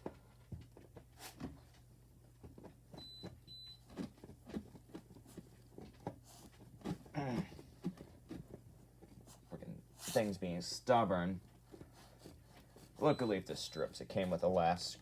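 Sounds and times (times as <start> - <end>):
faint high beeps: 13.0 - 14.0.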